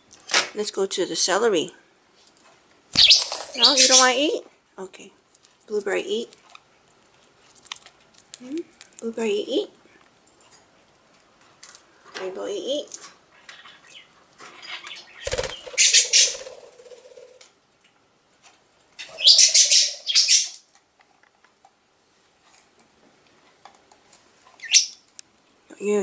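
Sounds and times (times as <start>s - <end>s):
budgerigars flapping wings: 15.2s - 17.4s.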